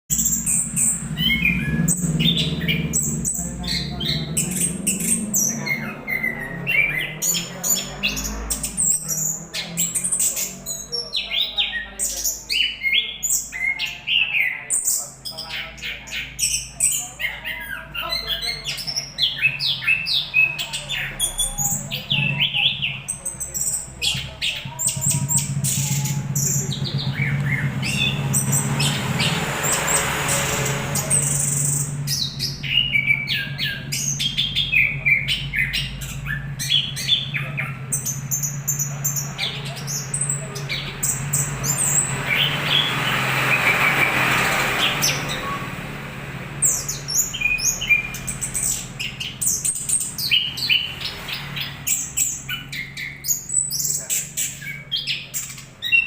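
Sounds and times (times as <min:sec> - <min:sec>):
songbird chirping and whistling: 0:00.1 - 0:44.1.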